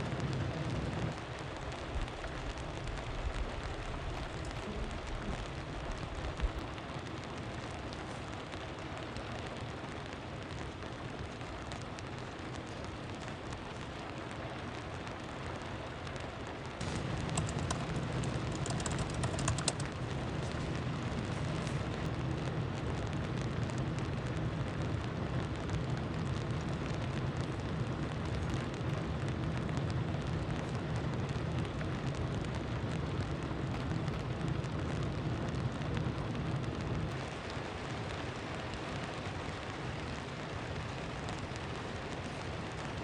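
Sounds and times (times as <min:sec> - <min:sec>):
rain falling: 0:00.0 - 0:43.0
low hum: 0:16.6 - 0:43.0.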